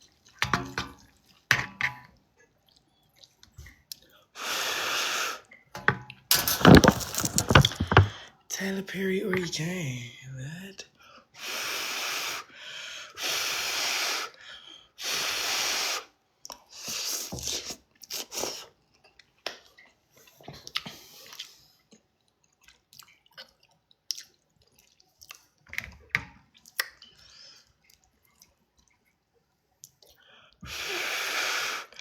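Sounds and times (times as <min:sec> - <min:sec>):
chewing and wet mouth sounds: 0:02.3 - 0:04.1, 0:17.6 - 0:30.6.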